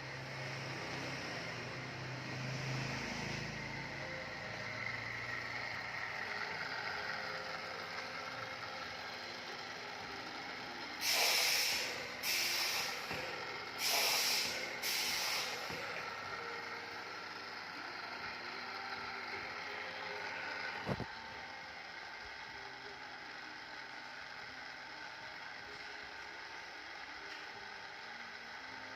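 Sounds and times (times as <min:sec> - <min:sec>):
pipe cutting machine running: 0:00.0 - 0:28.9
compressed air hisses: 0:11.0 - 0:13.2, 0:13.8 - 0:15.7.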